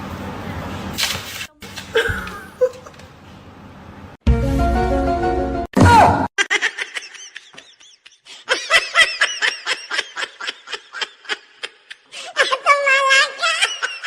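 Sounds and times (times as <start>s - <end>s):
person laughing in short bursts: 1.9s - 3.0s.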